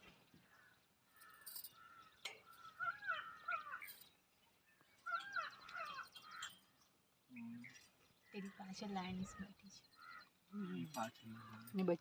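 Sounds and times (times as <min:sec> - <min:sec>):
bird calling: 0:00.0 - 0:12.0
forest background: 0:00.0 - 0:12.0.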